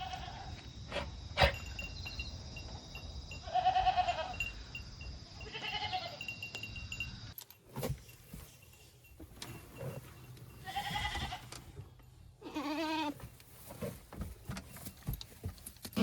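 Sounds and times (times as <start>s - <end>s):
goats bleating: 3.5s - 4.4s, 5.5s - 6.2s, 12.4s - 13.2s.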